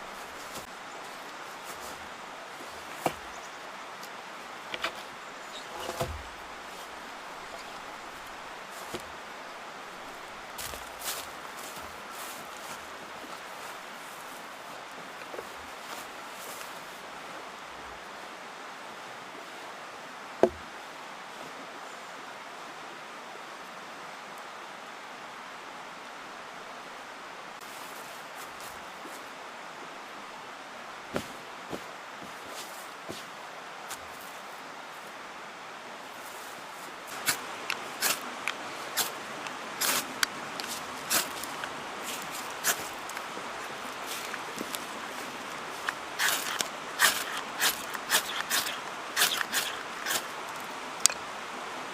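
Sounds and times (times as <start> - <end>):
mountain stream rushing: 0.0 - 51.9.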